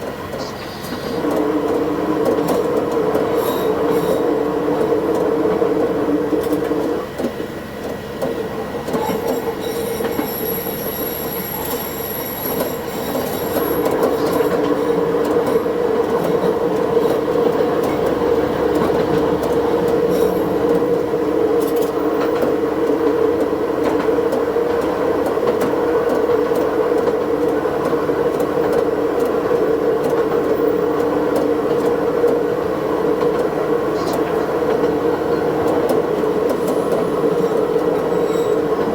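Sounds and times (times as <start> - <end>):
railcar engine and wheel drone: 0.0 - 38.9
high wheel squeal: 3.4 - 4.4, 9.0 - 15.0, 36.6 - 38.9.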